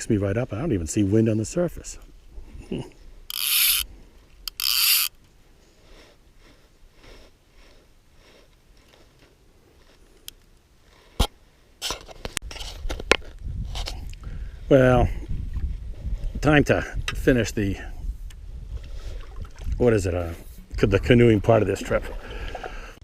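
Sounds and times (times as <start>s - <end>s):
fly reel ratchet buzzing: 3.3s - 3.9s, 4.5s - 5.1s.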